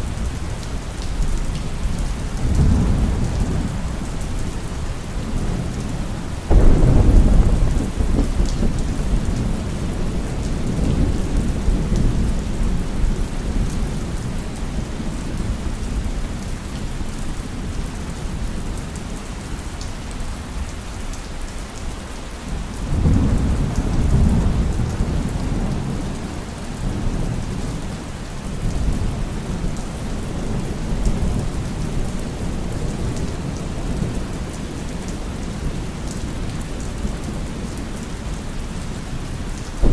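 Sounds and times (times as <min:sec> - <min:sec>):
heavy rain: 0:00.0 - 0:39.9
rolling thunder: 0:01.9 - 0:16.2, 0:22.9 - 0:28.0, 0:39.7 - 0:39.9.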